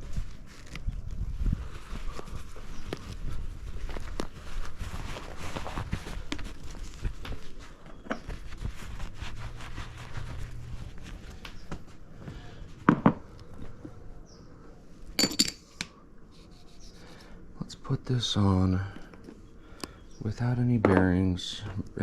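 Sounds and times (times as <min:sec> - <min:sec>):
rustling of parts and rag: 0:00.0 - 0:14.1.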